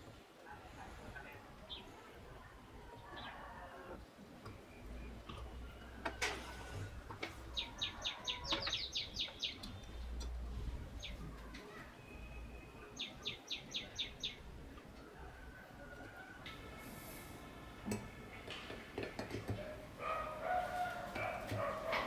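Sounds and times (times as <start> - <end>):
small bird chirping: 7.3 - 16.4
faint clicks: 8.5 - 11.8.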